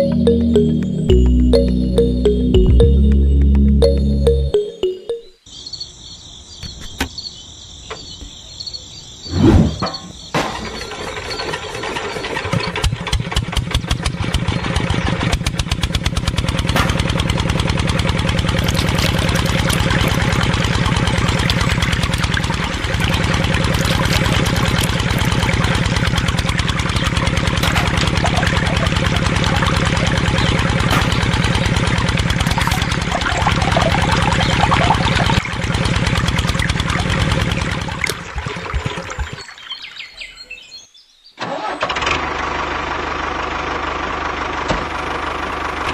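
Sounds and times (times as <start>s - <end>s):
music: 0.0s - 5.4s
small engine starting and running: 10.6s - 39.4s, 41.4s - 45.9s.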